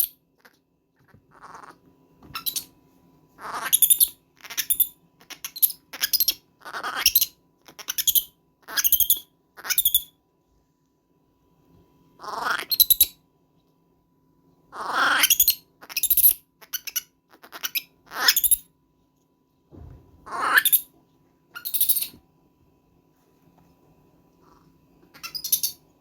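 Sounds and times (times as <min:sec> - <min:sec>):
baby monkey screaming: 0:01.3 - 0:02.7, 0:03.4 - 0:10.2, 0:12.2 - 0:13.2, 0:14.7 - 0:18.7, 0:20.2 - 0:20.9, 0:21.5 - 0:22.2, 0:24.5 - 0:25.8.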